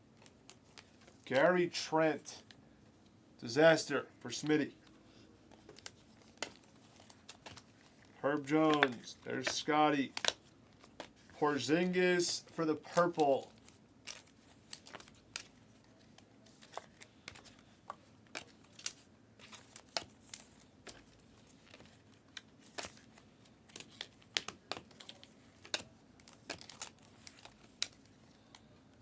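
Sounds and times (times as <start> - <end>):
trading cards being flipped: 5.5 - 15.6.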